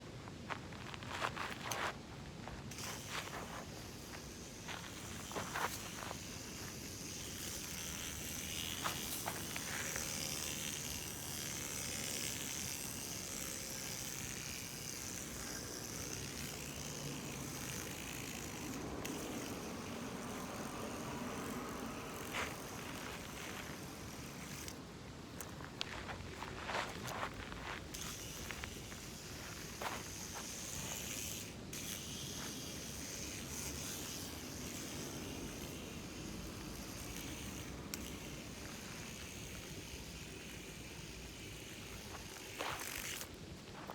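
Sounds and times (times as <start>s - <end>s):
spinning top whirring: 2.7s - 24.8s, 27.0s - 43.4s.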